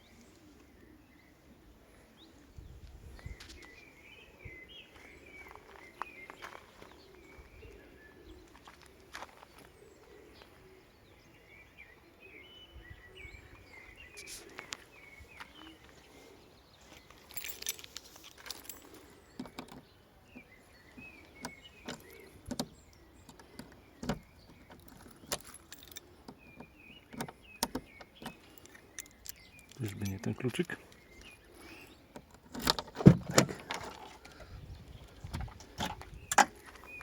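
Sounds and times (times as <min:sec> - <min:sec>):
birds chirping: 0:00.0 - 0:37.0
keys jangling: 0:17.1 - 0:19.2, 0:24.7 - 0:26.1.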